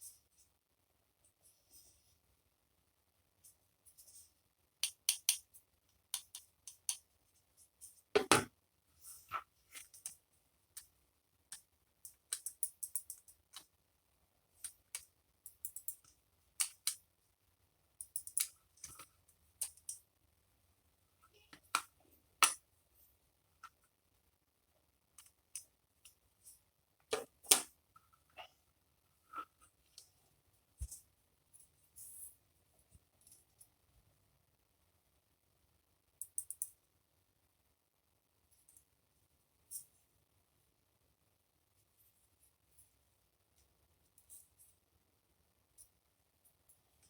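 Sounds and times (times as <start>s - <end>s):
small parts clicking and tapping: 3.4s - 8.5s, 9.7s - 13.8s, 14.6s - 17.1s, 18.0s - 20.1s, 21.5s - 22.6s, 36.2s - 36.8s.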